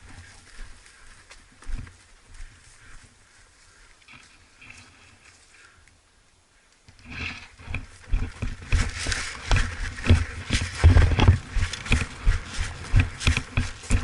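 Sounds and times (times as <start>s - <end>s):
quick footsteps: 0.0s - 3.2s, 7.6s - 14.0s
clothing and gear rustling: 7.1s - 14.0s.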